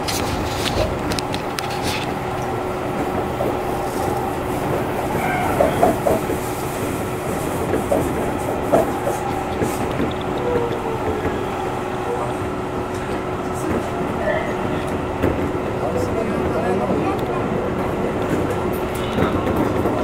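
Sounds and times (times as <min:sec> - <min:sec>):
constant hum: 0:00.0 - 0:19.9
train rolling noise: 0:00.0 - 0:20.0
wheel clicks over rail joints: 0:07.6 - 0:11.4.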